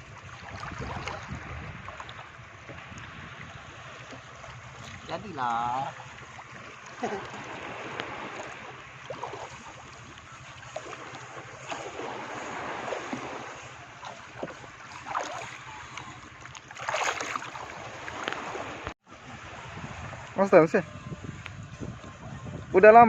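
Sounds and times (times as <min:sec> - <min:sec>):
wind noise on microphone: 0:00.0 - 0:03.9, 0:17.8 - 0:23.0
speedboat motor humming: 0:00.0 - 0:23.0
water noise: 0:00.0 - 0:23.0.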